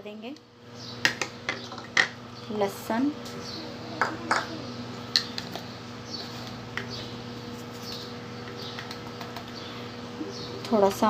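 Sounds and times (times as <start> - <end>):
low electrical hum: 0.0 - 11.0
small bird chirping: 0.8 - 1.0, 7.8 - 10.7.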